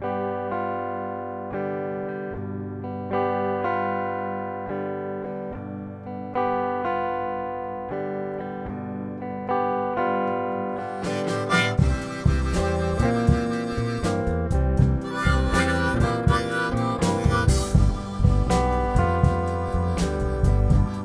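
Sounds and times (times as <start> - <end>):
guitar chords ringing: 0.0 - 21.0
drums and cymbals: 11.0 - 21.0.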